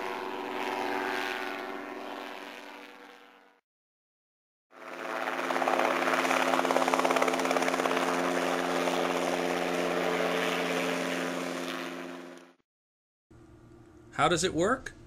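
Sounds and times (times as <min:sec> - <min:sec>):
helicopter engine and rotor chop: 0:00.0 - 0:03.6, 0:04.7 - 0:12.6.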